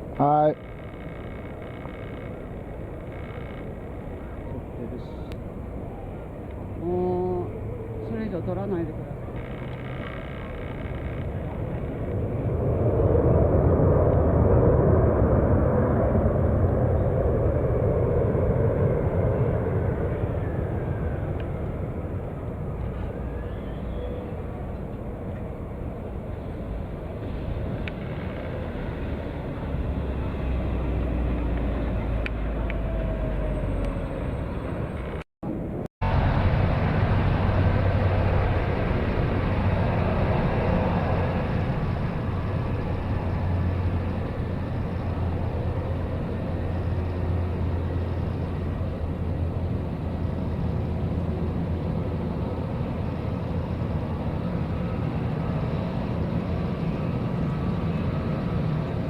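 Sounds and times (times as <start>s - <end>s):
jet airliner engines rumbling: 0.0s - 59.0s.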